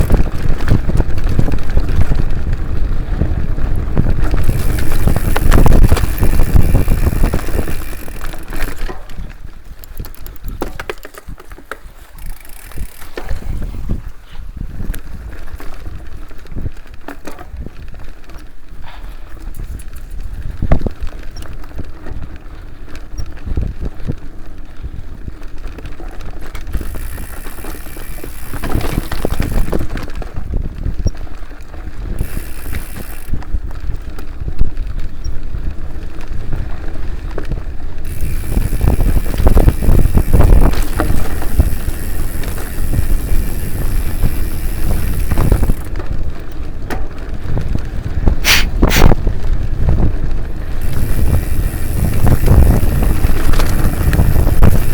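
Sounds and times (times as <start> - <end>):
bike parts rattling and knocking: 0.0 - 2.8, 3.9 - 14.0, 25.6 - 31.3, 32.1 - 33.6, 37.4 - 47.8, 50.2 - 54.9
tyres rumbling on dirt: 0.0 - 14.0, 26.5 - 30.6, 38.0 - 54.9.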